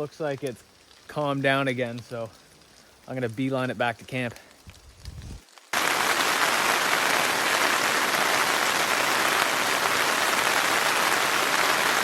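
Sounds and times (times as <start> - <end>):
heavy rain pouring: 5.7 - 12.0.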